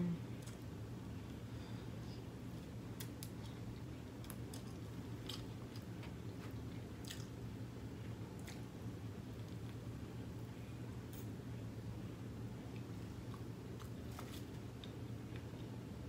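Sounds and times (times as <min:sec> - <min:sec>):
steady low hum: 0:00.0 - 0:16.0
person chewing noodles: 0:02.6 - 0:09.8.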